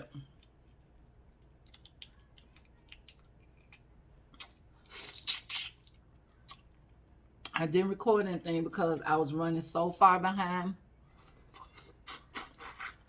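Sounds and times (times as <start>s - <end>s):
seafood shells clicking: 1.6s - 3.8s.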